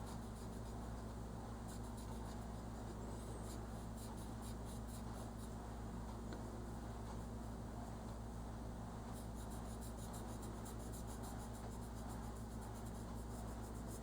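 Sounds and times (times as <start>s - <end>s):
steady low hum: 0.0s - 14.0s
crayon rubbing on paper: 9.2s - 14.0s.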